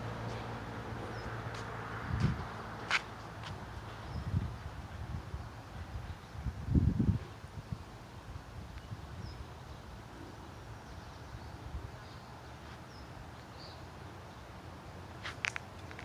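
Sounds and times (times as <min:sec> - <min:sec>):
wind rumble on microphone: 0:00.9 - 0:10.1.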